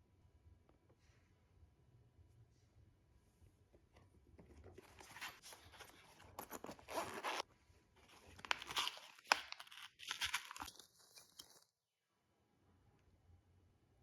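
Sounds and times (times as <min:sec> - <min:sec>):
zipper being pulled open: 0:05.2 - 0:07.4.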